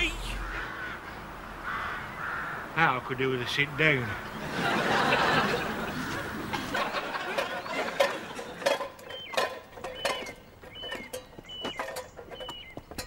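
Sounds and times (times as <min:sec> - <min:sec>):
high bird chirps: 0:09.0 - 0:13.0.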